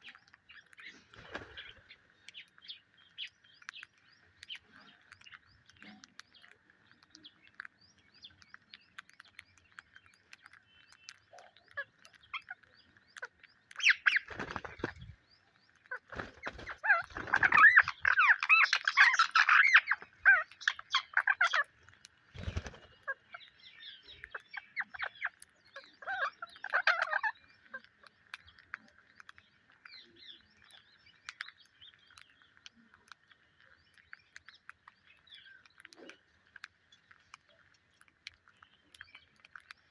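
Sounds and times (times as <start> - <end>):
parakeets chirping and chattering: 0.0 - 39.9
squawky bird calls: 15.9 - 21.7.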